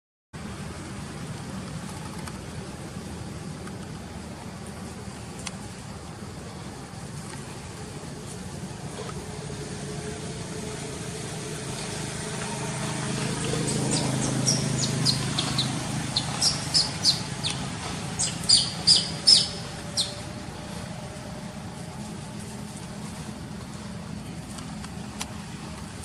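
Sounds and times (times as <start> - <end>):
bird chirping: 11.8 - 20.8.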